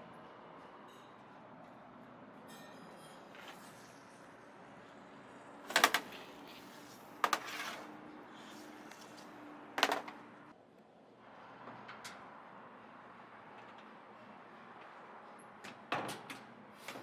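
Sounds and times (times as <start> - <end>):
sharp clattering knocks: 5.7 - 6.2.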